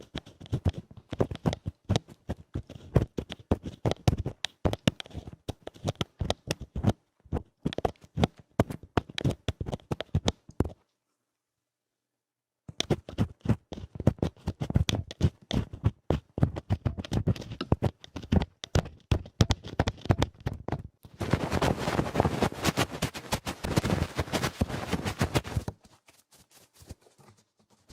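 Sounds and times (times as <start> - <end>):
scratching and rubbing on microphone: 0.0 - 10.8, 12.7 - 27.9.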